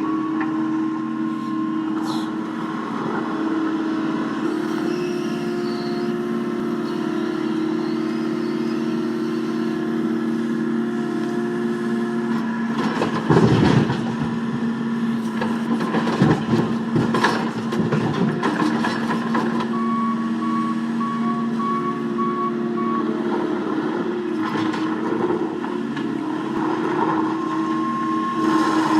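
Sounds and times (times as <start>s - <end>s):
reversing beeper: 0.0s - 0.7s, 4.5s - 11.6s, 19.6s - 23.3s, 27.3s - 28.9s
loud knocks and clattering: 12.8s - 14.2s.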